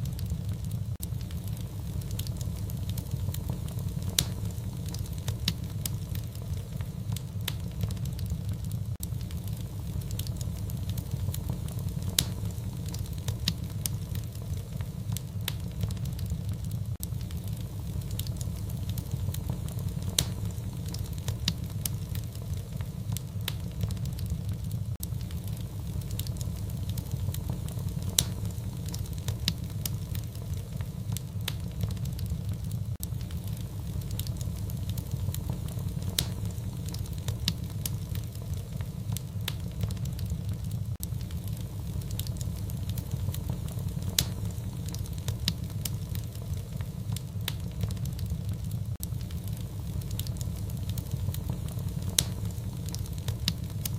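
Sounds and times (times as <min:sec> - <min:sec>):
fire crackling and popping: 0:00.0 - 0:53.9.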